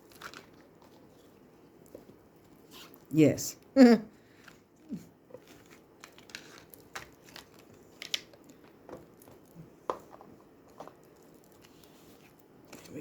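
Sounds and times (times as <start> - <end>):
cards and box rustling: 0.0 - 3.0, 5.3 - 13.0.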